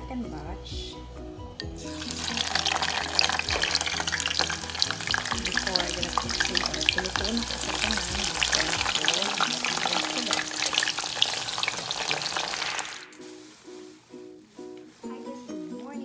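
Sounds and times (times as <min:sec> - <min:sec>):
hot oil sizzling while deep-frying: 0:01.7 - 0:13.4.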